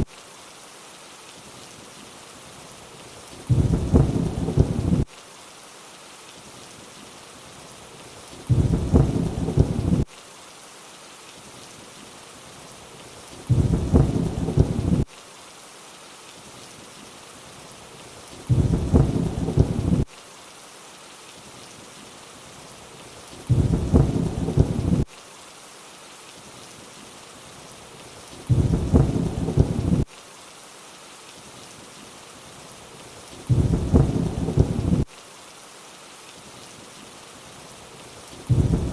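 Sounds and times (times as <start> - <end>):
steady rain falling: 0.0 - 38.9
thunder rumbles: 3.5 - 5.1, 8.5 - 10.1, 13.5 - 15.1, 18.5 - 20.1, 23.5 - 25.1, 28.5 - 30.1, 33.5 - 35.1, 38.5 - 38.9.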